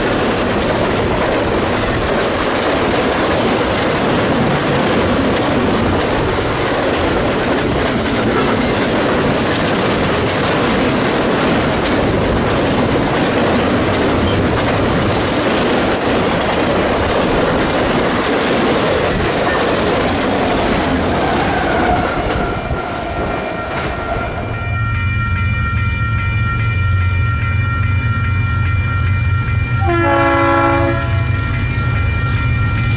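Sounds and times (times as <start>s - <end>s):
freight train wheels clattering: 0.0s - 24.8s
locomotive horn chord: 29.8s - 31.6s.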